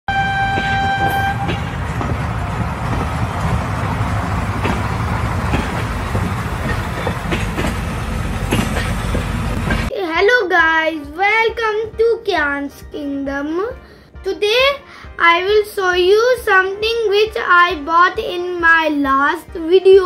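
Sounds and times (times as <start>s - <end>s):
train horn: 0.1s - 5.1s
train rumbling on rails: 0.1s - 9.9s
wheels clacking over rail joints: 0.1s - 9.9s.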